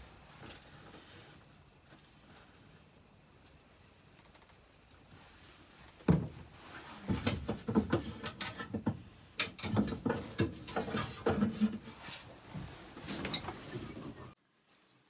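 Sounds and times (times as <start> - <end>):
tools and metal parts rattling: 7.1 - 12.0.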